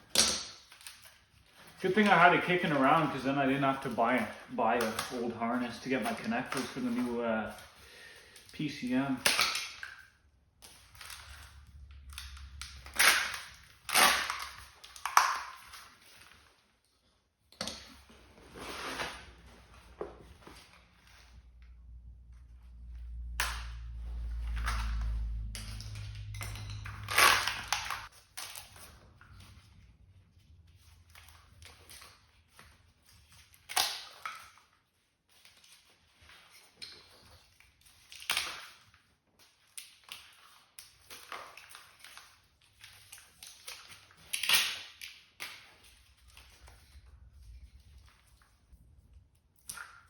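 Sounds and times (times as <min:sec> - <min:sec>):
wrapping tearing off wires: 0:10.6 - 0:16.6, 0:23.2 - 0:30.0, 0:35.4 - 0:48.6.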